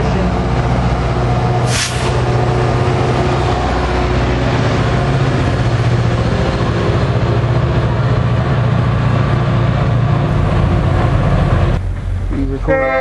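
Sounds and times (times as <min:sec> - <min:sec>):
diesel locomotive engine running: 0:00.0 - 0:13.0
short hiss: 0:01.7 - 0:02.2.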